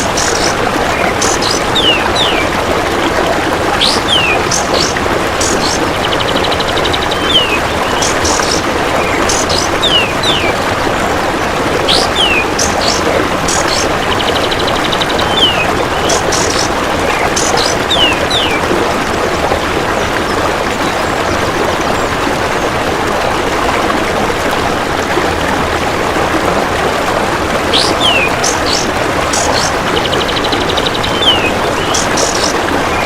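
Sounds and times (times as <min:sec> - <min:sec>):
songbird chirps: 0:00.0 - 0:02.6, 0:03.7 - 0:10.6, 0:11.8 - 0:18.7, 0:27.7 - 0:33.0
running water rushing: 0:00.0 - 0:33.0.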